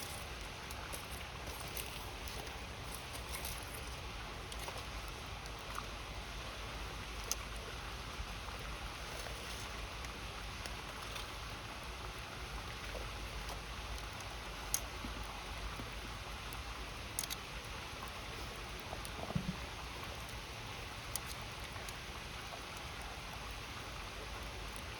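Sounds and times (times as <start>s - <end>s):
flowing river: 0.0s - 24.9s.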